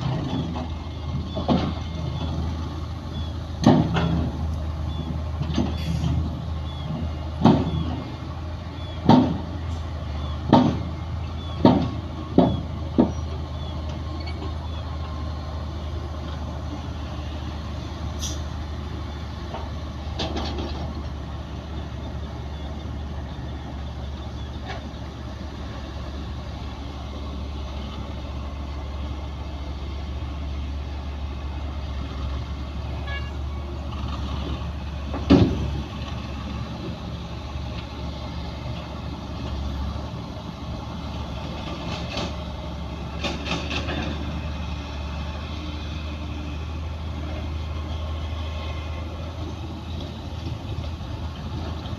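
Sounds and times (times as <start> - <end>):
diesel machinery engine running: 0.0 - 51.9.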